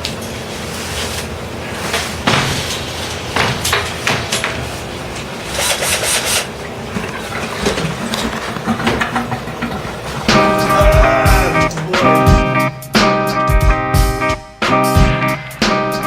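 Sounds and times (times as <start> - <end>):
tools knocking and scraping: 5.5 - 10.5
guitar music: 10.2 - 16.0.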